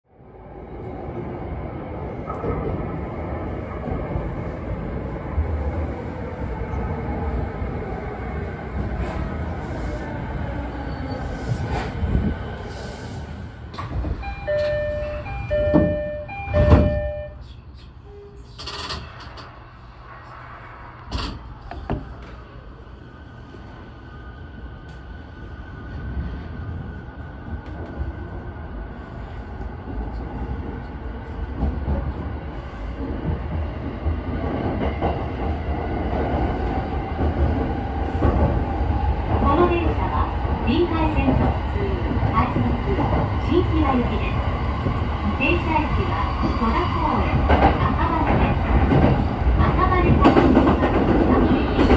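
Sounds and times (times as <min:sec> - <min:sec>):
train wheels rumbling on rail: 0:00.8 - 0:17.2, 0:24.6 - 0:51.9
electric train slowing: 0:04.8 - 0:28.6.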